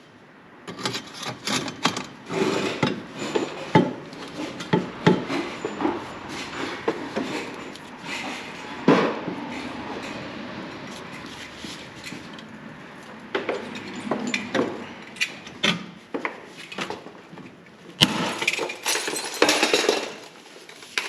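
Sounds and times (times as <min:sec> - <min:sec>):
clanks and knocks: 0:00.7 - 0:10.2, 0:13.3 - 0:20.3.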